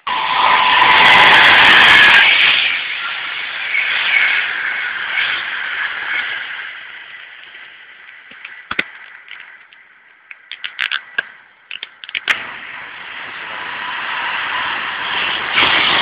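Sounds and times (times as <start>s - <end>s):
express train passing: 0.0s - 16.0s
train approaching: 0.0s - 16.0s
sharp clicks and cracks: 7.4s - 12.5s.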